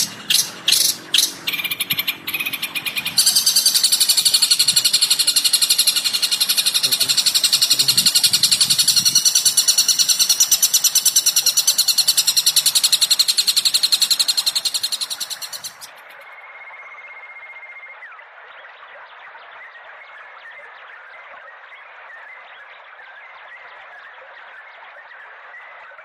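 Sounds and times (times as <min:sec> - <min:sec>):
bird chattering high chirps: 0:00.0 - 0:16.0.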